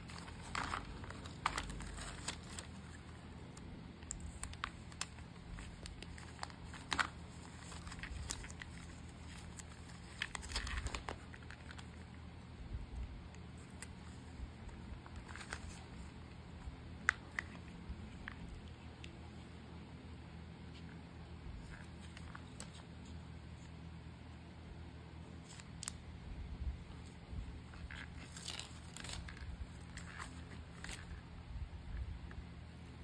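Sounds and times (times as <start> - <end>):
plastic packaging crinkling: 0.0 - 12.1, 13.6 - 16.4, 27.6 - 31.3
faint low hum: 0.0 - 33.0.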